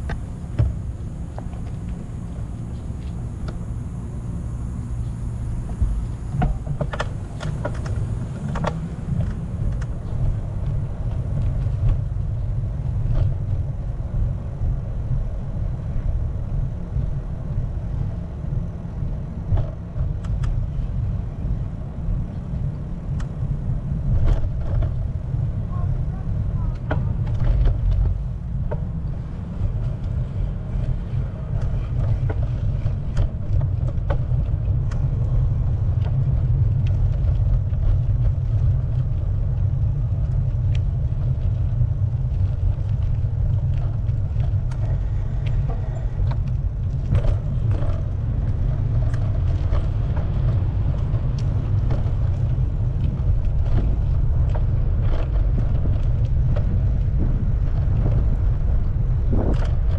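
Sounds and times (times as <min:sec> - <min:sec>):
wind buffeting microphone: 0:00.0 - 0:59.9
small clicks and ticks: 0:26.7 - 0:58.5.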